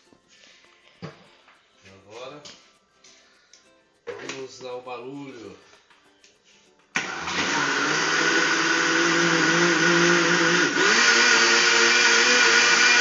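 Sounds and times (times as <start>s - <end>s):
blender motor running: 7.0s - 13.0s.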